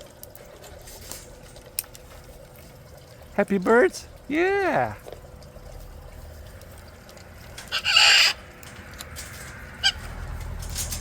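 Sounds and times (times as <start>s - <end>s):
parrot sharp call: 7.7s - 8.4s
parrot squawking: 7.7s - 8.5s, 9.8s - 10.1s.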